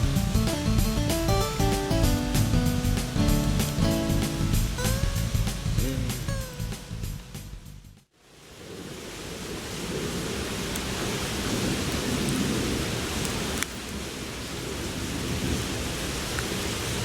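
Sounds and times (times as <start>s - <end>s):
fire crackling pops: 0.0s - 7.5s.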